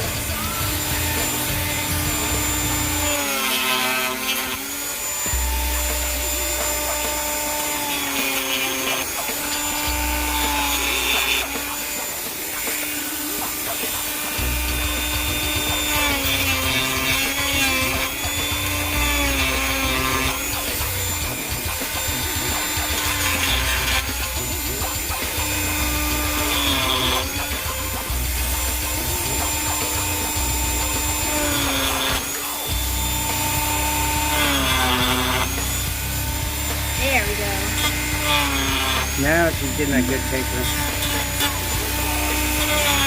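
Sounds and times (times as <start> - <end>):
power grinder grinding fiberglass: 0.0 - 43.0.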